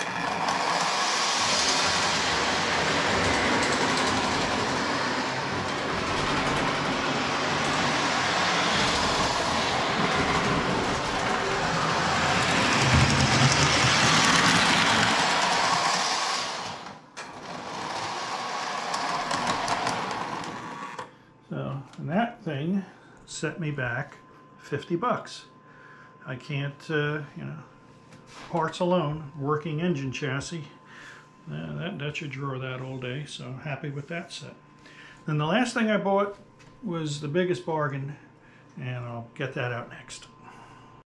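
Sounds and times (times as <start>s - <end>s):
wheel clatter: 0.0s - 20.8s
toy train motor running: 0.0s - 21.1s.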